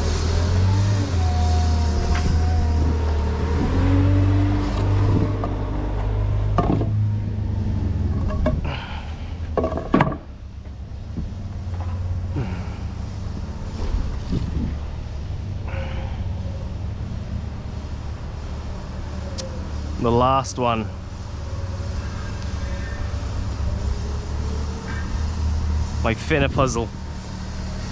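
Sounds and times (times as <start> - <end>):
forklift engine running: 0.0 - 27.9
hydraulics whining: 0.0 - 27.9
pallet clunks: 9.6 - 10.3.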